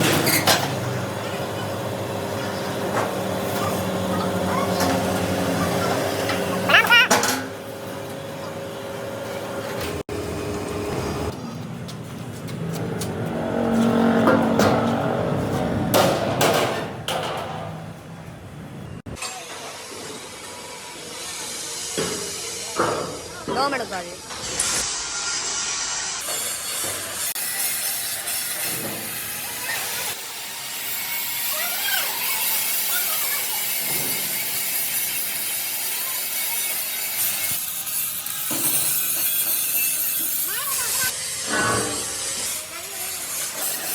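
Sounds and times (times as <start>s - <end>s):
metal knocks and clanks: 12.5s - 18.1s
power tool hissing on steel: 24.3s - 43.9s.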